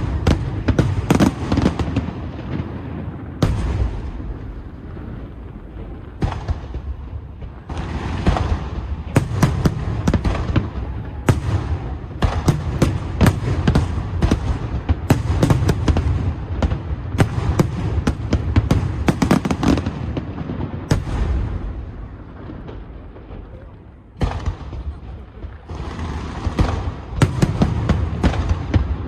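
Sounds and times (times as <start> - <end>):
low rumble and crackle: 0.0 - 19.2, 19.8 - 29.0
firework shells bursting with bangs: 0.0 - 29.0.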